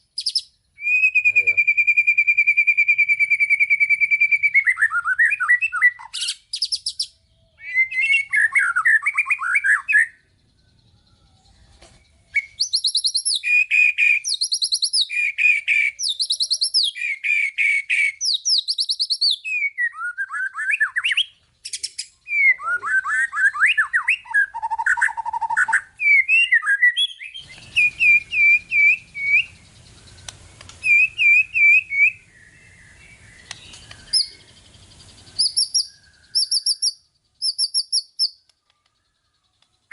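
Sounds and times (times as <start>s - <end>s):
songbird singing trills and whistles: 0.0s - 39.9s
faint low hum: 10.1s - 12.6s.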